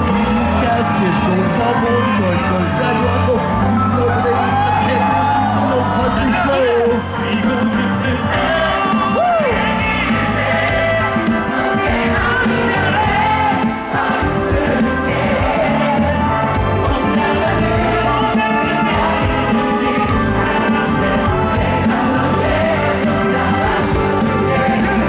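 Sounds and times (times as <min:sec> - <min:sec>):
live pop band playing: 0:00.0 - 0:25.0
person singing: 0:06.6 - 0:25.0.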